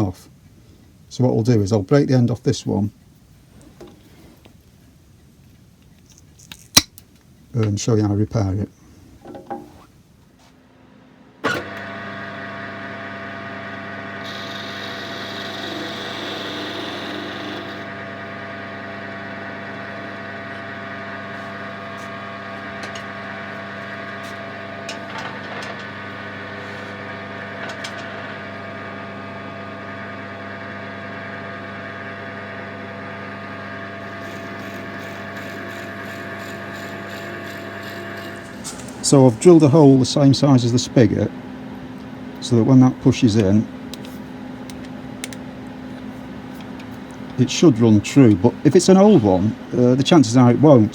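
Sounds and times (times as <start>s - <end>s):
wood lathe running: 11.5s - 28.4s, 33.1s - 40.0s, 47.4s - 50.8s
hiss of cutting: 34.0s - 39.3s.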